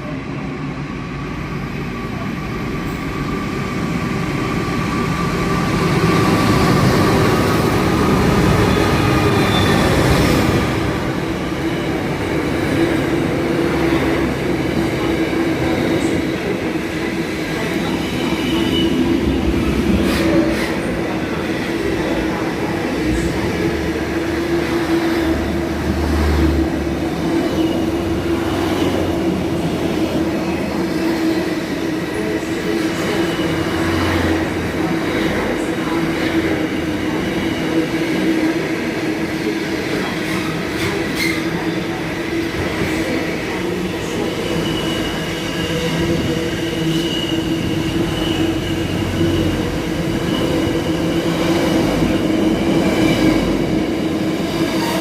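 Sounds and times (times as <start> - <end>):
freight train rumbling on rails: 0.0 - 55.0
train wheel squeal: 8.4 - 10.4, 27.4 - 28.0, 33.0 - 34.3, 44.2 - 52.3.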